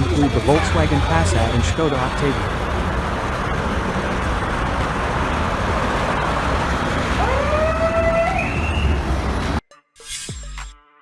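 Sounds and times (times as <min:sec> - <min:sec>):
street and engine noise: 0:00.0 - 0:09.6
police siren: 0:06.7 - 0:09.1.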